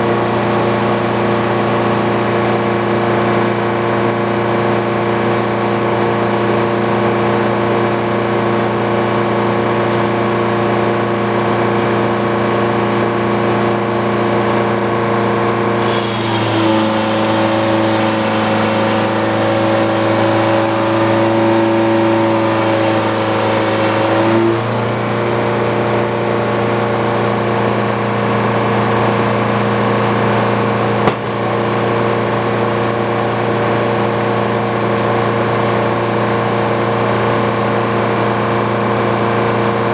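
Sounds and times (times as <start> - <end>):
sawmill engine running: 15.7 - 25.5, 31.0 - 32.5
saw cutting through log: 15.8 - 25.2, 31.1 - 31.8
sharp knock: 31.1 - 31.7.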